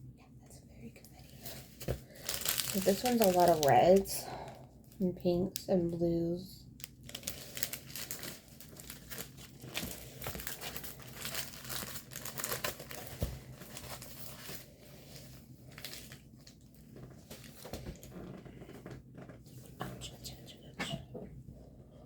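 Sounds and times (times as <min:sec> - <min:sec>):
plastic packaging crinkling: 0:01.2 - 0:19.3
plastic tearing: 0:01.8 - 0:04.1, 0:06.8 - 0:14.6, 0:15.6 - 0:19.3.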